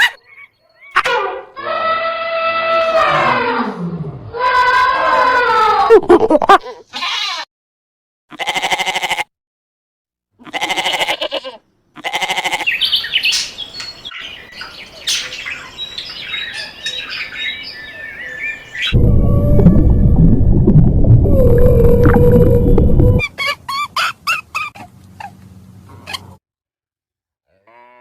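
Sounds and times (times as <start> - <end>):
livestock bleating: 6.9 - 7.5, 8.3 - 9.3, 10.4 - 12.8, 27.5 - 28.0.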